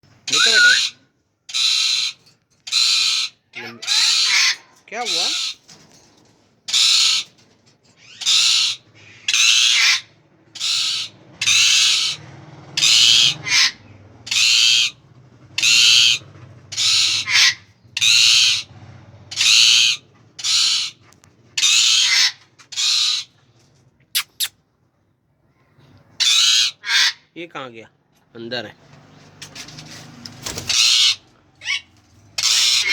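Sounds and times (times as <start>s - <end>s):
parakeet screeching: 0.3s - 5.6s, 6.7s - 7.3s, 8.0s - 12.2s, 12.8s - 15.0s, 15.6s - 18.7s, 19.3s - 21.0s, 21.6s - 23.3s, 24.2s - 24.5s, 26.2s - 27.2s, 30.5s - 32.9s.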